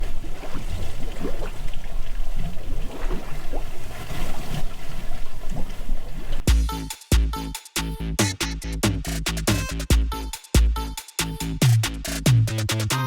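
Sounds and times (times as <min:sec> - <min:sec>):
electronic music with heavy beat: 0:06.5 - 0:13.0.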